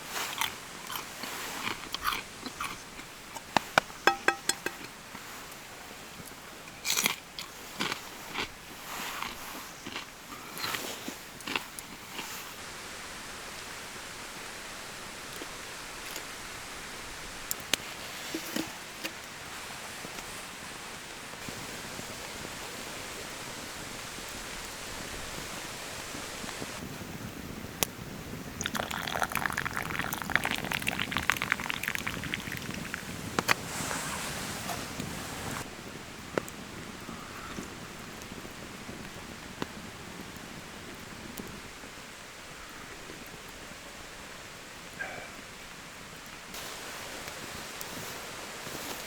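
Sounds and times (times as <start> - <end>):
steady rain hiss: 0.0 - 10.2, 10.9 - 49.0
crackling patter: 28.6 - 33.7.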